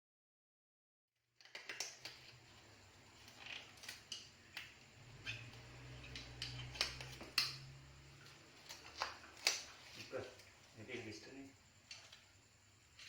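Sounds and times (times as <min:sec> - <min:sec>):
small parts and tools clinking: 0:01.4 - 0:11.2
faint low hum: 0:02.0 - 0:13.0.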